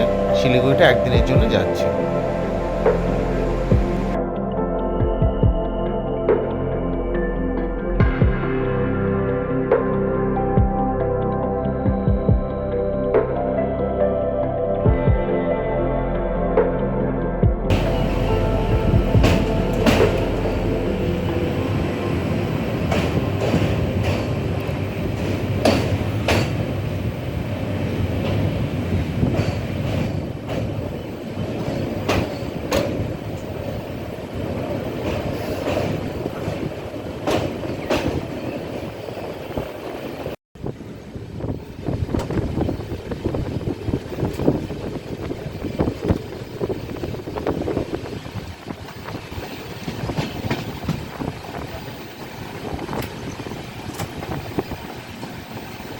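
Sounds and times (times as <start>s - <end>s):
train rumbling on rails: 0.0s - 5.6s, 17.4s - 55.9s
wheels clacking over rail joints: 17.7s - 40.4s, 41.6s - 55.9s.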